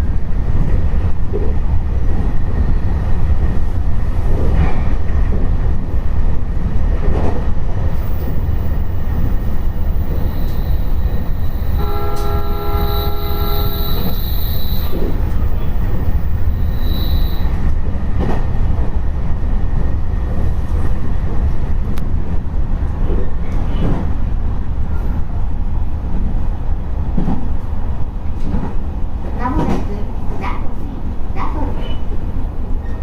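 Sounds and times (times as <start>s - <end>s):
train wheels rumbling on rail: 0.0s - 33.0s
thin high whine: 8.0s - 17.6s
train horn chord: 10.4s - 15.6s.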